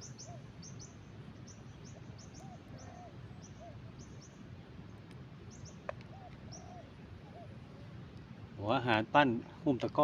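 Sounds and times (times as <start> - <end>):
low hooting bird call: 0.0 - 4.4, 5.5 - 8.0
birds chirping: 0.0 - 10.0.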